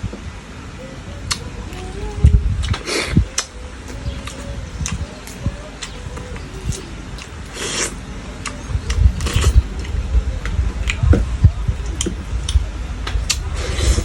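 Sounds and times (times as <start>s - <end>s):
chewing with clicks: 2.6s - 14.0s
short hissing sounds: 6.6s - 8.0s.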